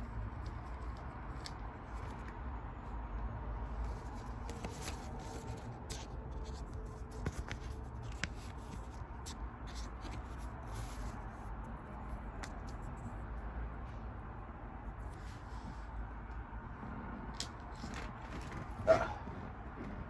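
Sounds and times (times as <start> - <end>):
cards rustling and sliding: 0.1 - 2.4, 3.8 - 13.2, 15.0 - 15.9.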